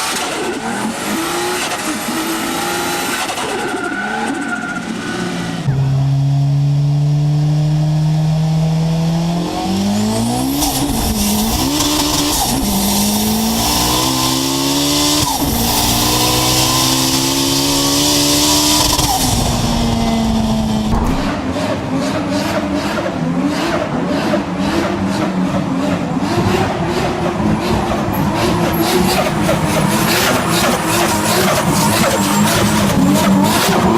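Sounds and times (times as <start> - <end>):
car engine revving: 0.0 - 33.9
tyre squeal: 15.2 - 21.4
exhaust pops: 15.2 - 21.8.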